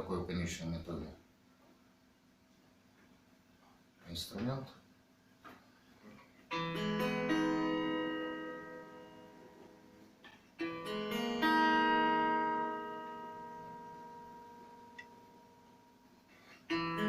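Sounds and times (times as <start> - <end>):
guitar chords strummed: 6.5 - 16.0, 16.7 - 17.0.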